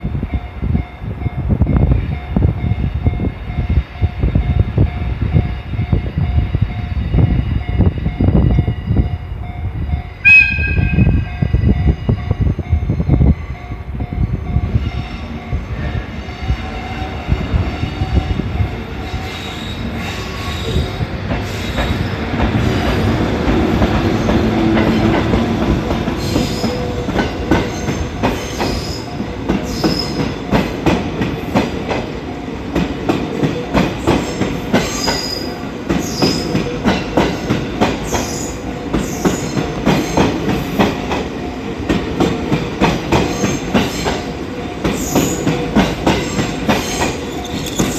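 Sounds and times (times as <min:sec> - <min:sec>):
high flange squeals: 0:10.2 - 0:22.1, 0:46.2 - 0:47.9
train wheels clacking over rail joints: 0:19.2 - 0:32.1, 0:32.7 - 0:47.9.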